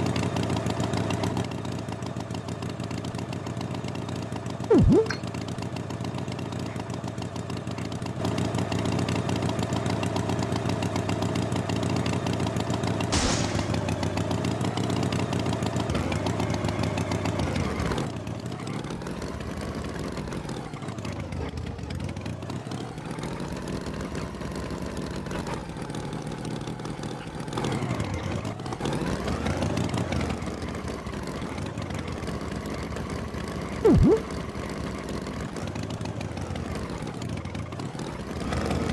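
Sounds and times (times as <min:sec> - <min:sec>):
tractor engine running: 0:13.1 - 0:14.8
loud sweep: 0:33.9 - 0:34.3.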